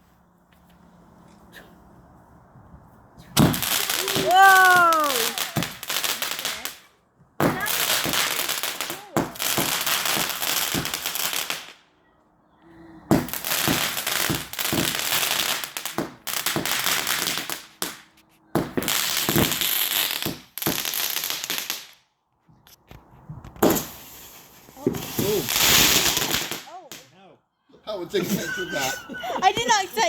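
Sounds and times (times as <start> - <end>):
fireworks bangs and crackling: 3.4 - 11.8, 13.1 - 22.0, 23.3 - 27.0.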